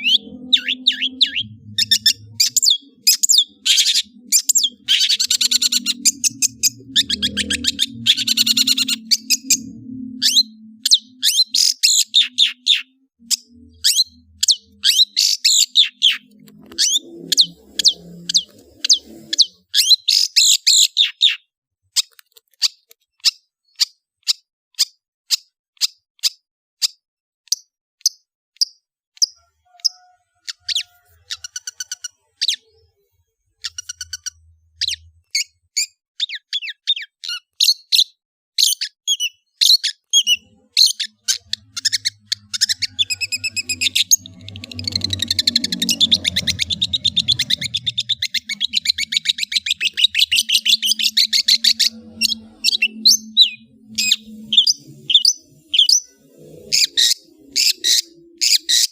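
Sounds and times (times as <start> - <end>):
bird singing sharp notes: 0.0 - 21.4, 38.7 - 58.9.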